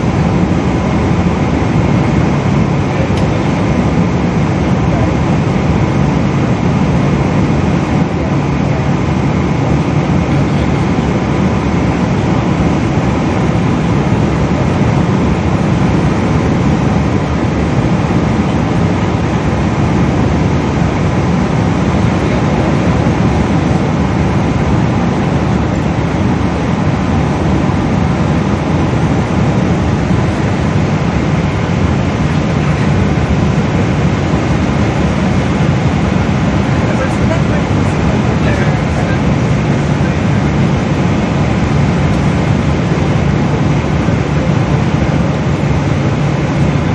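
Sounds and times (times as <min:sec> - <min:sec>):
airliner cabin jet engine rush: 0:00.0 - 0:46.9.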